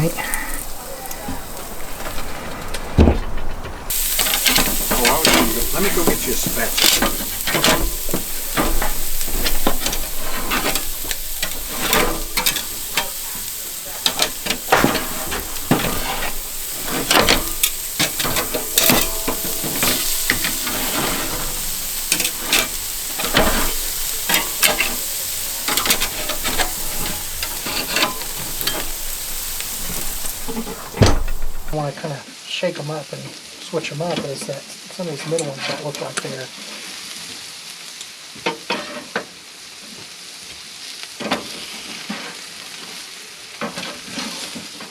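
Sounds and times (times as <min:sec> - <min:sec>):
utensils clicking and scraping: 0:00.0 - 0:31.8
food sizzling on a grill: 0:00.0 - 0:44.9.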